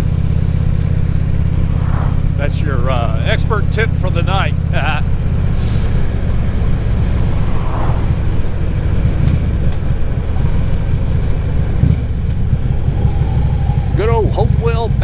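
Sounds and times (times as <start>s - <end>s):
motorcycle engine cruising: 0.0s - 15.0s
wind and road noise: 0.0s - 15.0s.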